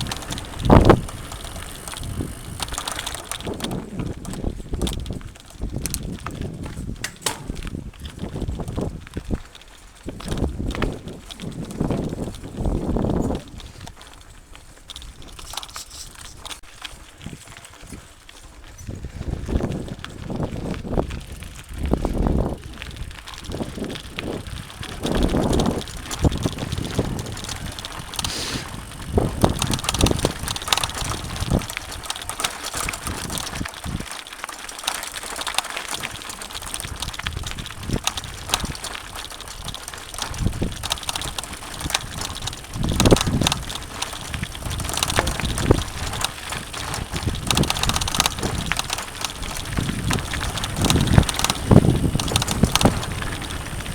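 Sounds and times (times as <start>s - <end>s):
bike clicks and rattles: 0.0s - 53.9s
bike tyre noise on dirt: 0.0s - 53.9s
low rumbles: 40.4s - 53.9s.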